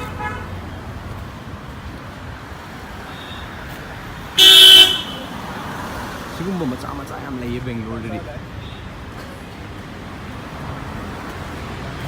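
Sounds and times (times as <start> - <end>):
street traffic: 0.0 - 12.0
vehicle horn blast: 4.4 - 5.3.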